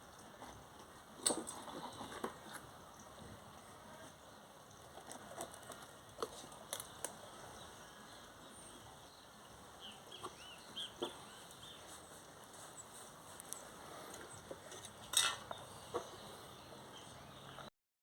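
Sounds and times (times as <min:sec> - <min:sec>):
bird chirps: 0:07.6 - 0:12.1.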